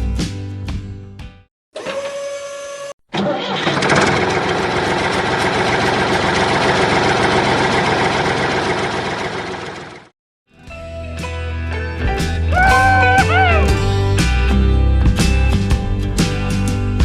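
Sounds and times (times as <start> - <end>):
small tractor engine running: 3.1 - 10.1.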